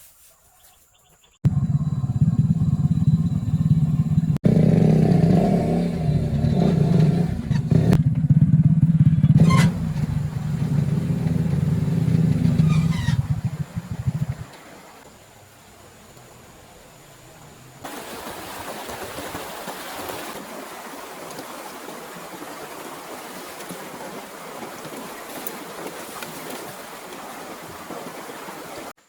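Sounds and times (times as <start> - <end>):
motorcycle engine idling: 1.4 - 14.5.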